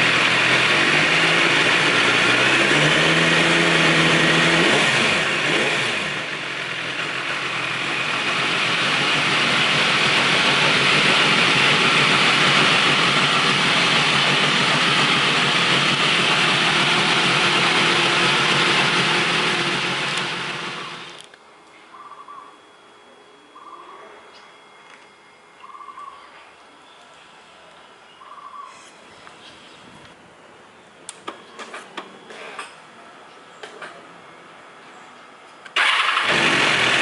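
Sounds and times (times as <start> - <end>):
motorcycle engine idling: 0.0 - 21.2.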